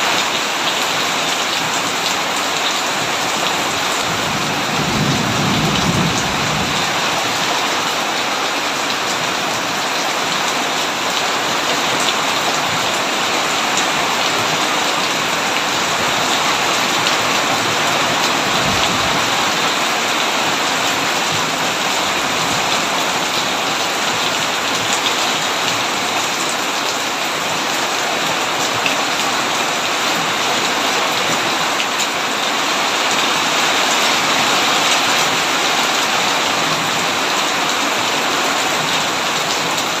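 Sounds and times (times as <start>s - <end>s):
heavy rain on a tin roof: 0.0s - 40.0s
low rumble of thunder: 4.0s - 7.4s, 17.8s - 19.6s.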